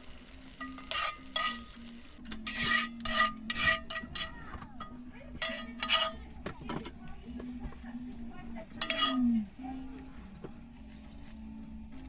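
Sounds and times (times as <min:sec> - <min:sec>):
light sizzle: 0:00.0 - 0:04.1
metal utensil scraping a pan: 0:00.5 - 0:07.0, 0:08.7 - 0:09.5.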